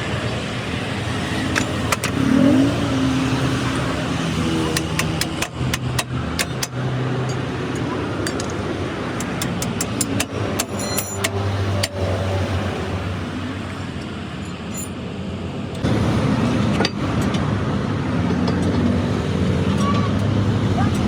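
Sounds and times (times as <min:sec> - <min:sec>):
vehicle engines in traffic: 0:00.0 - 0:21.0
sharp metallic clicks: 0:04.7 - 0:12.0
ringing clink: 0:10.6 - 0:11.3.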